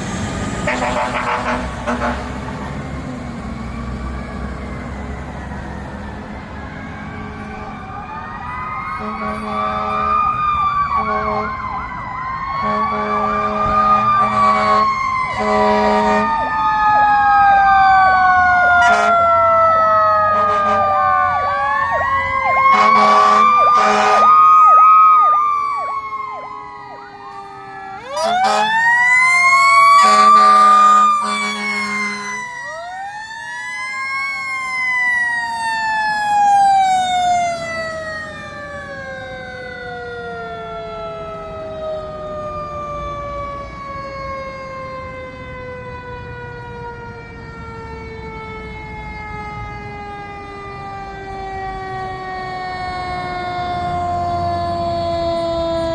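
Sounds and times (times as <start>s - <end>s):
fire truck sirens wailing: 0.0s - 55.9s
deep horn blasts: 0.7s - 2.7s, 9.0s - 10.2s, 11.0s - 11.6s, 12.6s - 16.4s, 18.8s - 19.2s, 20.3s - 21.0s, 22.7s - 24.4s, 28.1s - 28.8s, 29.8s - 32.4s.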